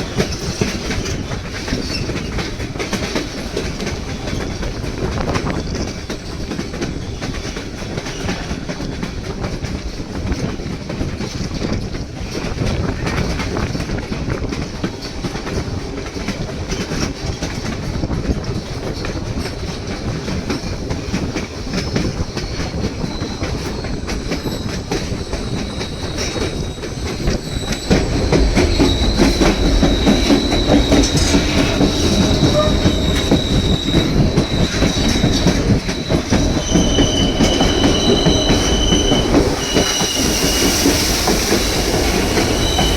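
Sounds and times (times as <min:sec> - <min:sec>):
train cars rumbling on rails: 0:00.0 - 0:42.9
high-pitched wheel squeal: 0:23.0 - 0:42.9.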